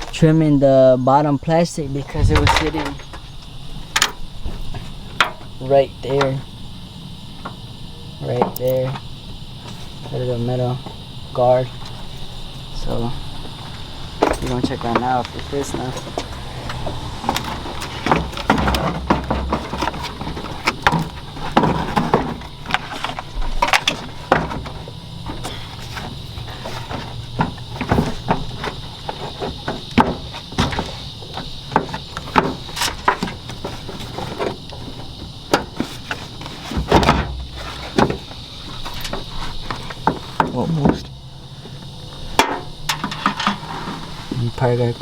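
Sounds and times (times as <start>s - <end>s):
plastic panel and metal guard rattling: 2.0s - 6.5s, 17.3s - 45.0s.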